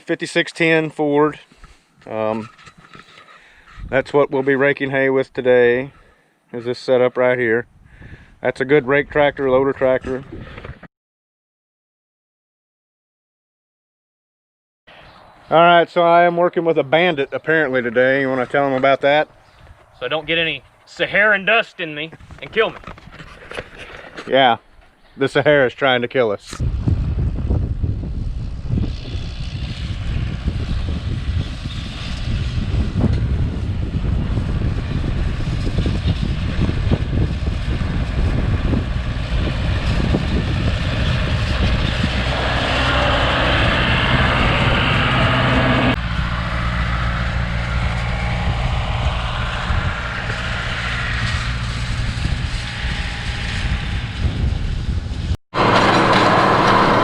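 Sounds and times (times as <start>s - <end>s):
noisy rush: 26.6s - 57.0s
tractor diesel engine running: 35.4s - 57.0s.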